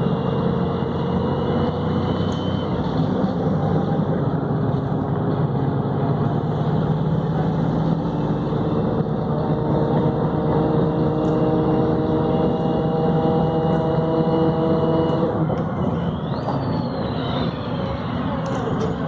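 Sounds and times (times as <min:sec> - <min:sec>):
high gearbox whine: 0:00.0 - 0:04.4, 0:12.4 - 0:19.0
bus diesel engine running: 0:00.0 - 0:19.0.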